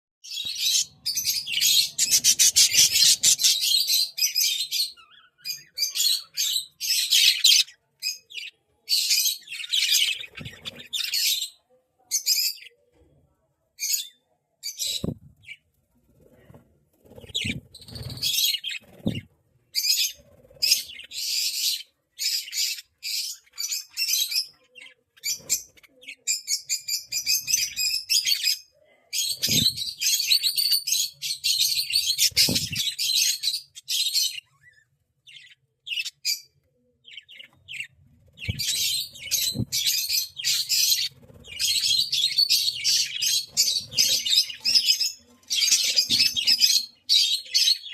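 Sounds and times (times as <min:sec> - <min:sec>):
budgerigars chattering and chirping: 0:00.3 - 0:11.5, 0:17.2 - 0:19.2.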